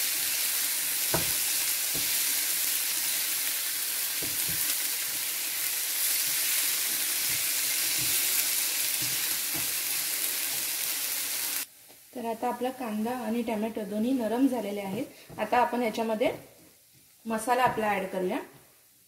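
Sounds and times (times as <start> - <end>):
onion and tomato sizzling in a pan: 0.0 - 19.0.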